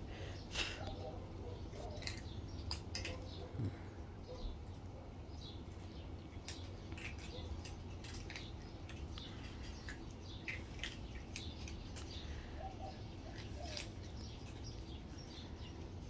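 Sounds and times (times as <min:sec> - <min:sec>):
low steady background rumble: 0:00.0 - 0:16.0
small birds chirping: 0:00.0 - 0:16.0.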